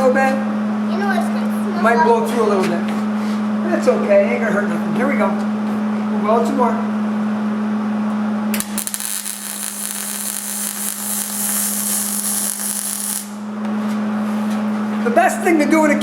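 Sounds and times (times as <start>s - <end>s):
steady low hum: 0.0s - 16.0s
welding arc crackling: 8.5s - 13.5s.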